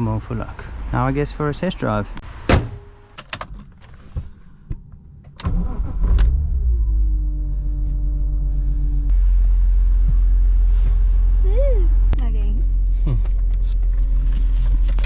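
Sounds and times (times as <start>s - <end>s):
car engine starting and idling: 3.3s - 15.0s.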